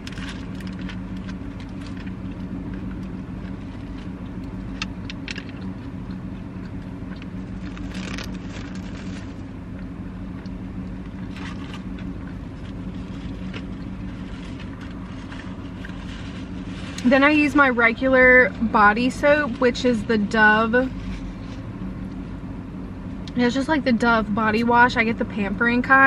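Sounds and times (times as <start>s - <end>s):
person chewing: 0.0s - 15.1s
low car hum: 0.0s - 26.0s
paper wrapper crinkling: 7.5s - 9.5s.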